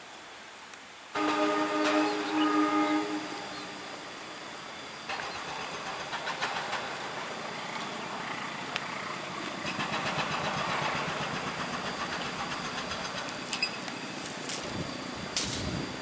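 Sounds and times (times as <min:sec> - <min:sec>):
train wheels rumbling on bridge: 0:01.2 - 0:16.0
wheel clicks over track: 0:05.1 - 0:07.9, 0:08.8 - 0:13.9.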